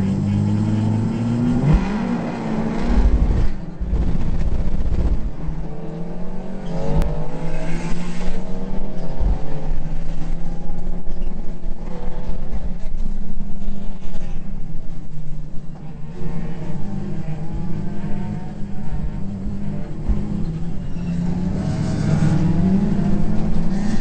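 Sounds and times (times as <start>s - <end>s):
car engine revving under acceleration: 0.0s - 11.0s, 16.5s - 24.0s.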